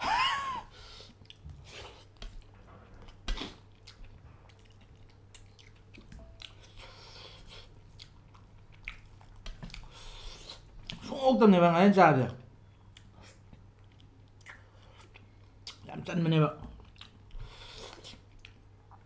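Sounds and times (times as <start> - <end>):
wet chewing and smacking: 0.9 - 11.2, 12.8 - 15.9, 16.6 - 19.0.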